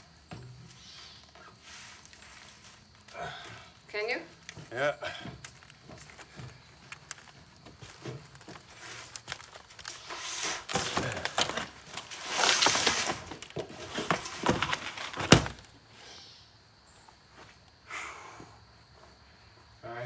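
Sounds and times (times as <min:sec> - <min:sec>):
materials rustling and crinkling: 0:00.0 - 0:15.8.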